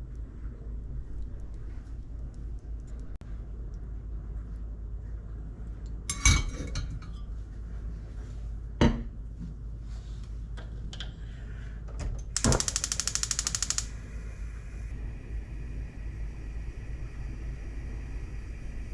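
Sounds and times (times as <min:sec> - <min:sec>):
rapid even clicking: 0:12.4 - 0:13.9.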